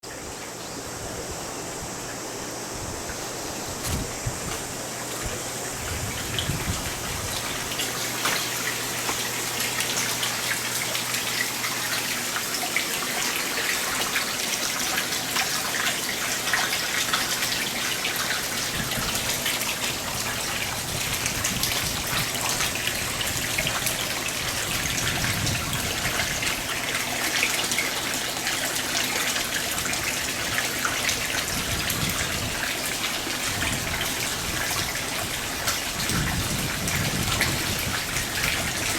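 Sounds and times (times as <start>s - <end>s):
steady low hum: 0.0s - 12.6s
water splashing in a pond: 3.1s - 38.9s.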